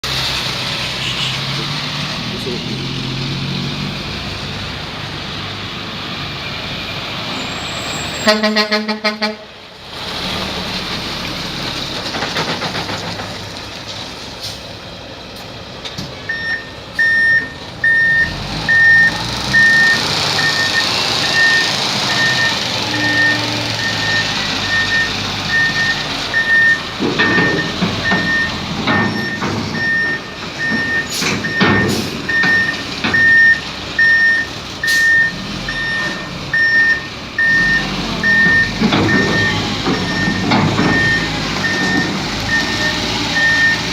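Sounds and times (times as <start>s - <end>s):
truck engine rumble: 0.0s - 43.9s
loud knocks and clatter: 11.8s - 14.1s, 26.8s - 33.4s, 38.3s - 42.3s
truck reverse alarm beeping: 16.2s - 43.9s.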